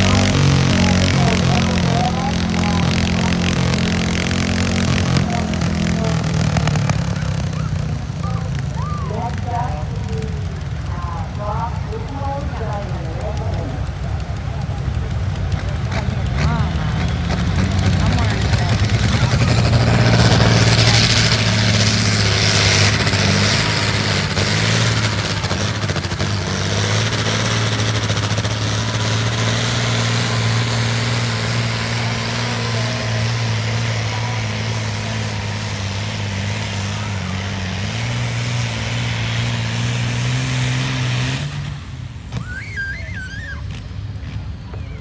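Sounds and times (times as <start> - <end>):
tractor engine under heavy load: 0.0 - 45.0.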